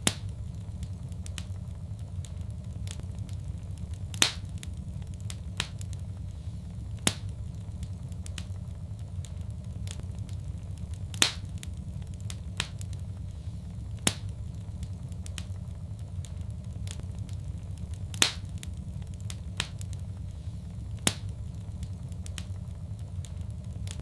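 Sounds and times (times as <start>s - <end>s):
sharp fire pops: 0.0s - 24.0s
wood fire crackling: 0.0s - 24.0s.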